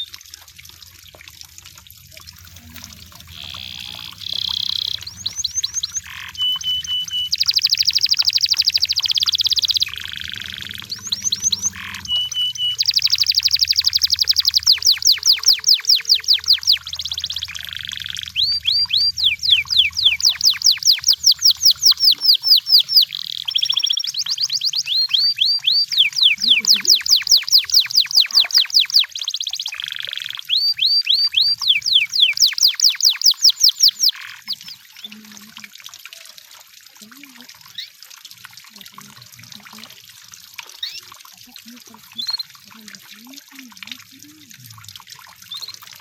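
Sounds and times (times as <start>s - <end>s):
canary singing: 2.4s - 35.2s.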